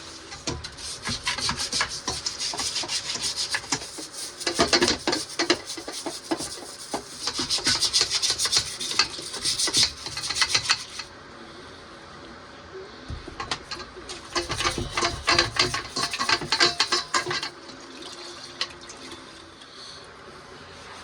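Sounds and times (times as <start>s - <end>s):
stiff brush scrubbing metal: 0.0s - 11.1s, 13.7s - 17.5s.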